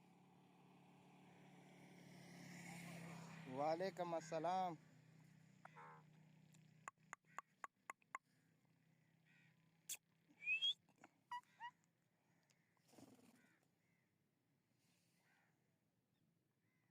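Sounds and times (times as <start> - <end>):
parrot clicks: 6.9 - 8.2
parrot rising whistles: 10.4 - 10.8.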